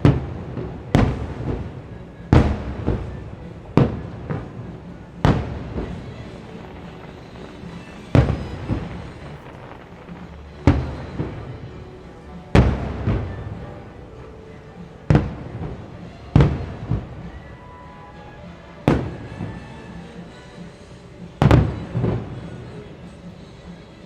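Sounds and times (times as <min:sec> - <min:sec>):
faint show music: 0:00.0 - 0:24.0
fireworks booming: 0:00.0 - 0:24.0.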